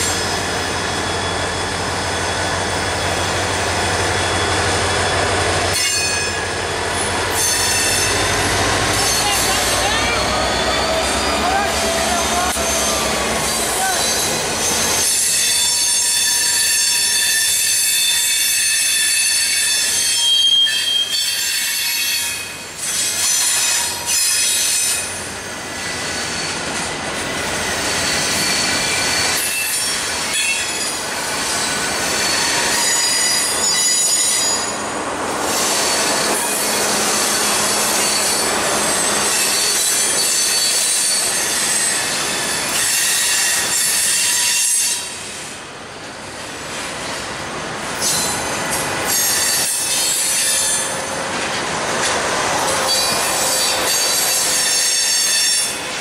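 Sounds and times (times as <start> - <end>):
steel wheels squealing on rails: 0.0 - 56.0
train rolling noise: 0.0 - 56.0.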